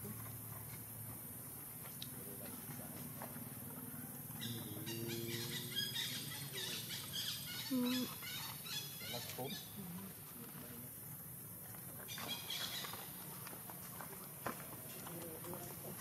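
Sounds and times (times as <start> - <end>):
small birds chirping: 3.8 - 11.2, 12.0 - 13.6
low bird call: 4.4 - 9.8.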